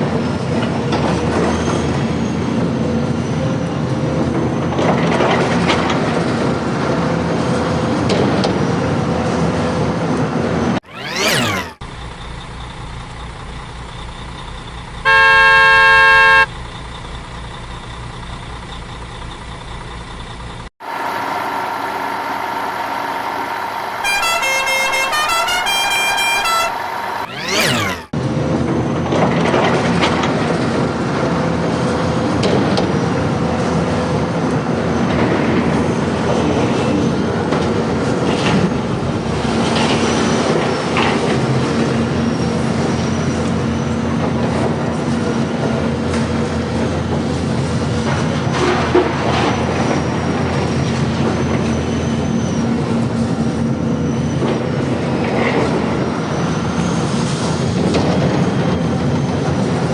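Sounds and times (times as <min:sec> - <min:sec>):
engine hum: 0:05.1 - 0:59.9
electronic beeps: 0:15.1 - 0:16.5
loud horn blast: 0:15.1 - 0:16.5, 0:20.8 - 0:28.1.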